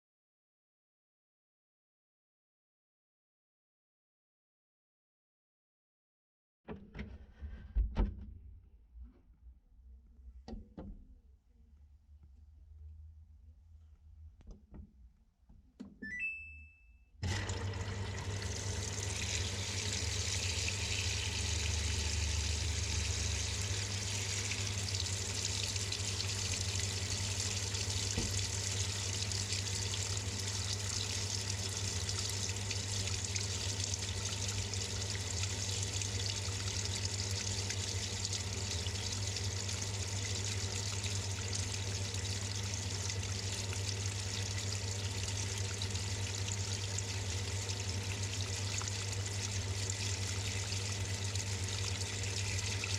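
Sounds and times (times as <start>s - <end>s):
water pouring into washing machine: 17.2s - 52.9s.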